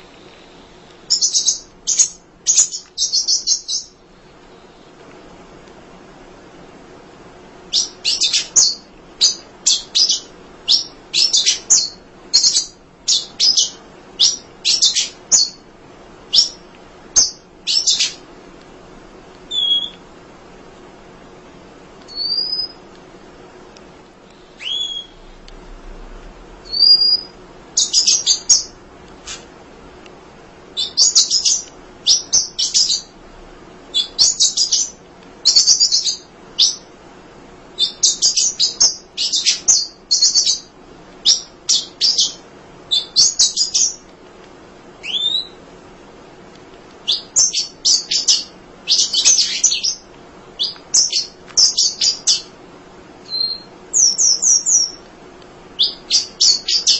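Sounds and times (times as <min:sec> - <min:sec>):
high chattering bird twitter: 0:01.1 - 0:04.0, 0:07.8 - 0:15.6, 0:17.2 - 0:18.2, 0:22.1 - 0:22.8, 0:24.4 - 0:25.3, 0:26.6 - 0:28.8, 0:30.8 - 0:33.1
bird whistles: 0:07.7 - 0:15.6, 0:19.5 - 0:20.0, 0:22.1 - 0:22.8, 0:24.4 - 0:25.3, 0:26.6 - 0:28.7, 0:37.8 - 0:40.6, 0:45.0 - 0:45.6, 0:53.3 - 0:55.0.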